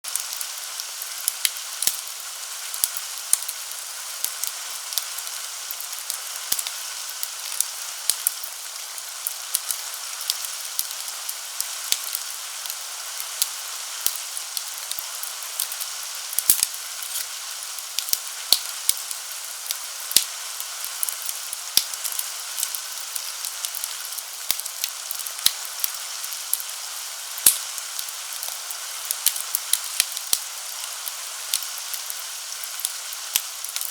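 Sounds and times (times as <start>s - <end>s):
rain hiss: 0.1s - 33.9s
wood fire crackling and popping: 0.1s - 33.9s.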